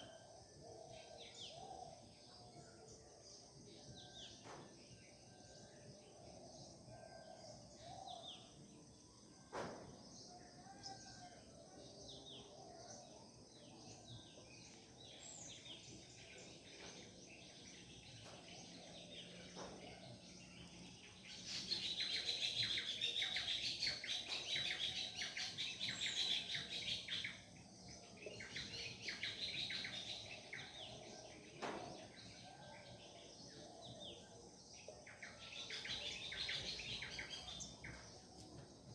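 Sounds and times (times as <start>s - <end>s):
birds singing and chirping: 10.0s - 38.9s.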